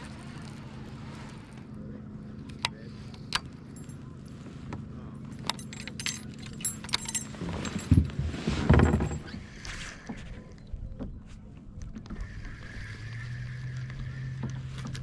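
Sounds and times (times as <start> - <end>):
small metal pieces clinking: 5.4 - 8.0
low thumps with rubbing: 7.3 - 10.4.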